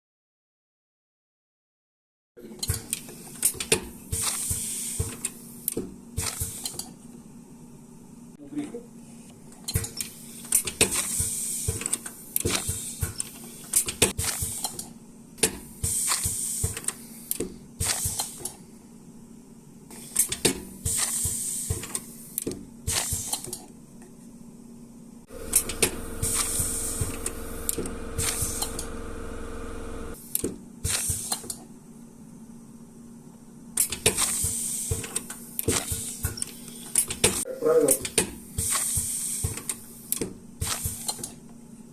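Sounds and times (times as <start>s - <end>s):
short bursts of hissing: 25.3s - 28.9s
small motor running: 25.3s - 30.2s.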